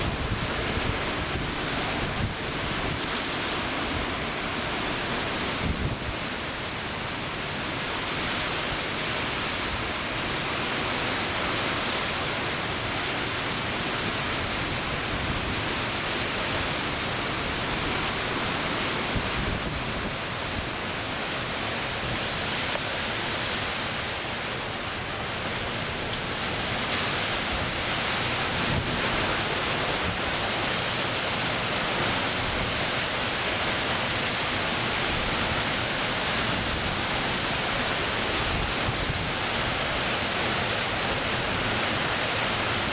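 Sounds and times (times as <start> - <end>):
wind buffeting microphone: 0.0 - 3.1
wind and rain rushing: 0.0 - 42.9.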